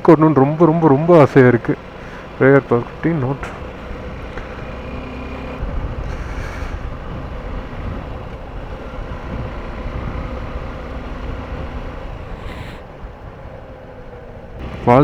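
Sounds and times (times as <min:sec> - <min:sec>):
motorcycle engine and road rumble: 0:00.0 - 0:15.0
wind noise on microphone: 0:05.6 - 0:13.9.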